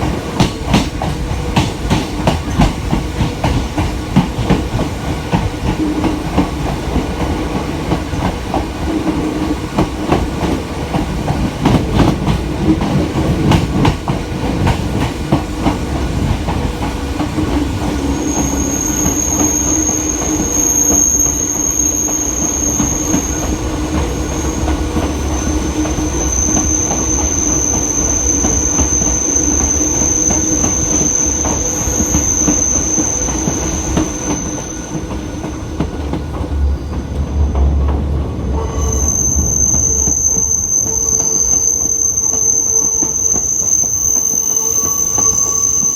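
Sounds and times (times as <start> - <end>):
train wheels clicking over rail joints: 0.0 - 20.5
high wheel squeal: 15.8 - 37.2, 38.5 - 45.9.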